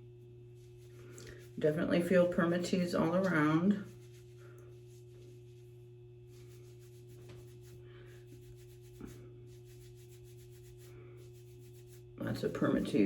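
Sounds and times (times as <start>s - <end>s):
low hum: 0.0s - 13.0s
fingers rustling through wig fibres: 2.5s - 12.2s.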